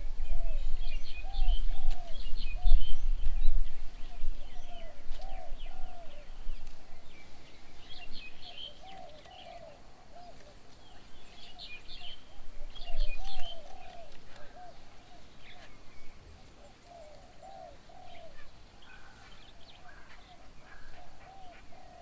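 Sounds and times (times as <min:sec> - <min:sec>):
bird cooing: 0:04.0 - 0:07.2, 0:08.4 - 0:22.0.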